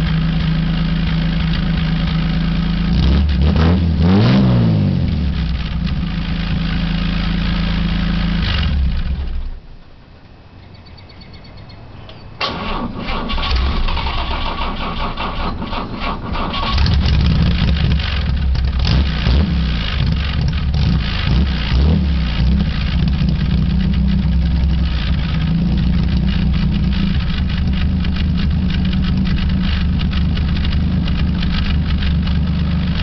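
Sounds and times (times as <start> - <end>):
car engine running: 0.0 - 9.8, 13.4 - 33.0
starter cranking engine: 12.4 - 19.0, 22.9 - 33.0.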